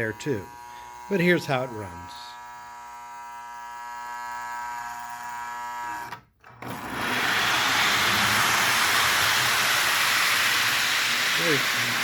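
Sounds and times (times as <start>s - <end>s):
steady electrical buzz: 0.0s - 6.0s
toy train running on track: 6.9s - 12.0s.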